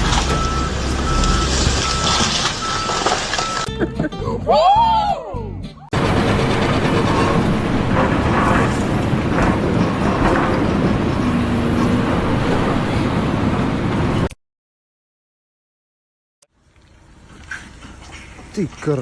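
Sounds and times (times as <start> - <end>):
heavy vehicle running: 0.0 - 4.5, 5.8 - 14.3.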